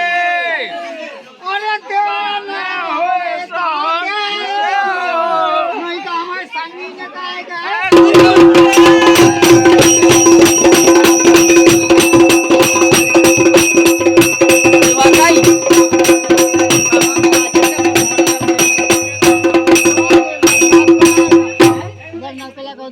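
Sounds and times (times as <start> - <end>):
fast dense drumming: 7.9 - 22.4
metallic jingling: 7.9 - 22.6
steady held note: 7.9 - 22.6.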